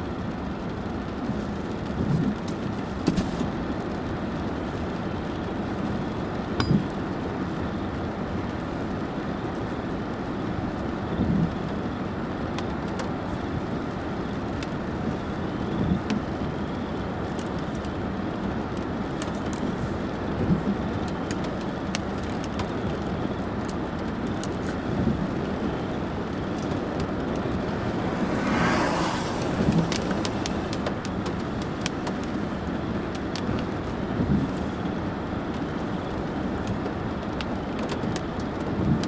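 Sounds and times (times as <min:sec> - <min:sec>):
road and tyre noise: 0:00.0 - 0:39.0
short rushing swell: 0:26.0 - 0:31.1.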